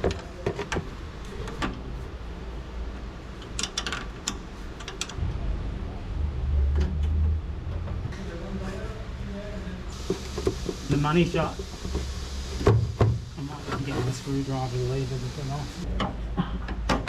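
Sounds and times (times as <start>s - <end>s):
low rumble: 5.2s - 9.3s.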